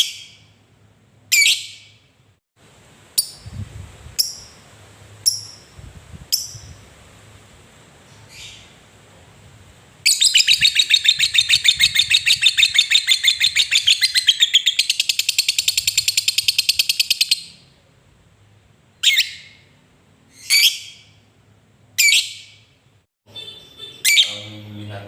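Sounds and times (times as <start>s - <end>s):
lovebird shrill chatter: 10.1s - 17.5s
lovebird single calls: 10.1s - 17.5s, 19.0s - 19.7s, 20.3s - 21.2s.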